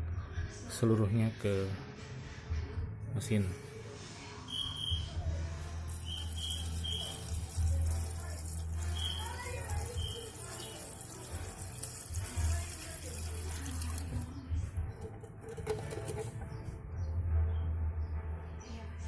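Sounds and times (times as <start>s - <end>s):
liquid pouring from can: 5.9s - 16.5s.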